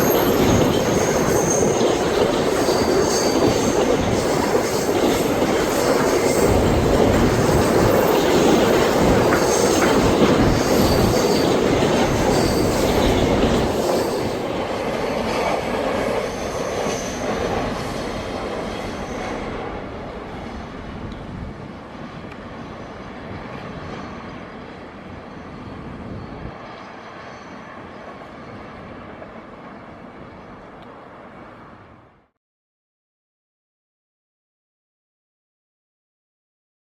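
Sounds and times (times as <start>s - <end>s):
train wheels squealing: 0.0s - 20.8s, 22.5s - 29.0s
freight train rolling past: 0.0s - 32.2s.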